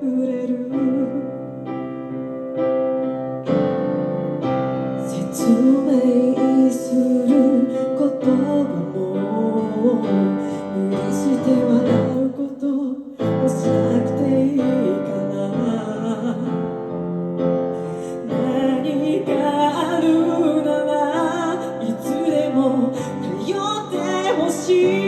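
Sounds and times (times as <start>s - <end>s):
woman singing a ballad: 0.0s - 2.2s, 5.0s - 25.0s.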